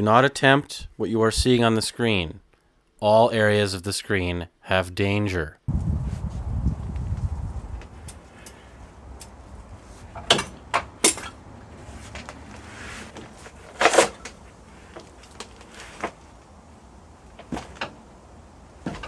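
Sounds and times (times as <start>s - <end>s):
metal knocks and clanks of tools: 10.1s - 11.4s.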